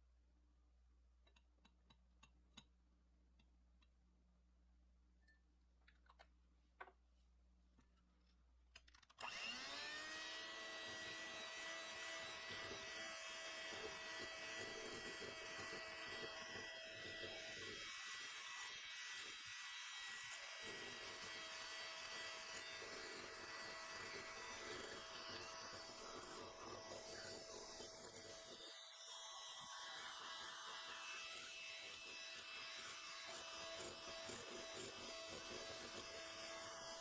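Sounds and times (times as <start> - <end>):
electric mixer motor whining: 9.2 - 37.0.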